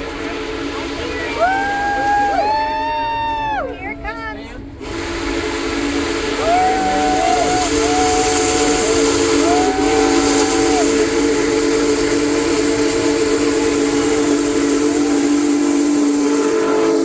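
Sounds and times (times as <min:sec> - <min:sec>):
steam locomotive whistle chord: 0:00.0 - 0:03.5, 0:04.8 - 0:17.0
train running: 0:00.0 - 0:17.0
hiss of steam: 0:04.8 - 0:17.0.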